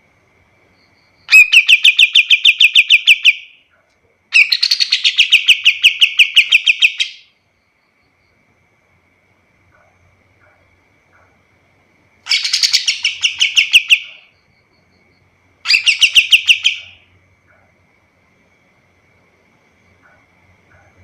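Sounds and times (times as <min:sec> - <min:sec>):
bird singing rapid trills: 0:01.3 - 0:03.6, 0:04.4 - 0:07.3, 0:12.3 - 0:14.4, 0:15.7 - 0:17.0.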